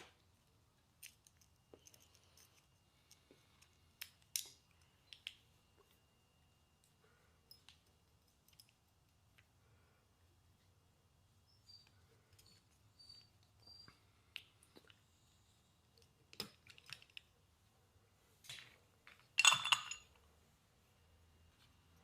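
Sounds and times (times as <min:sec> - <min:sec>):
light clicks and taps of tools: 0:00.0 - 0:06.1, 0:06.8 - 0:09.6, 0:15.8 - 0:17.5.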